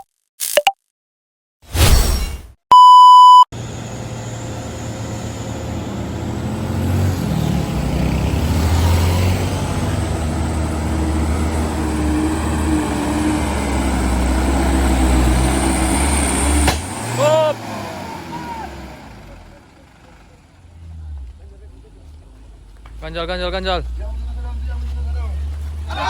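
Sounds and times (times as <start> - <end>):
loud electronic beep: 2.7 - 3.5
diesel truck engine running: 3.6 - 26.0.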